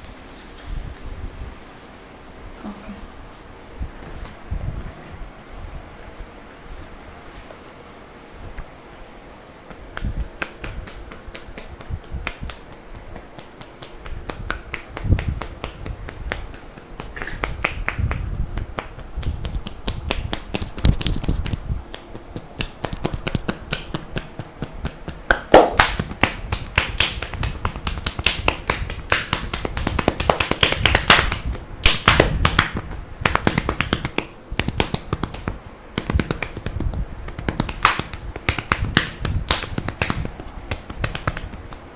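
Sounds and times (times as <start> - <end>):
hands slapping skin in massage: 9.6 - 41.9.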